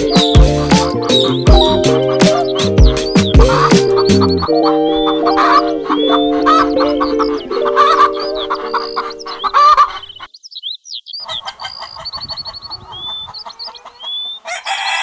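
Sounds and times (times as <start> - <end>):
steady organ notes: 0.0 - 10.2
chickens clucking: 0.0 - 10.3, 11.2 - 15.0
high gliding chirping calls: 0.0 - 14.5.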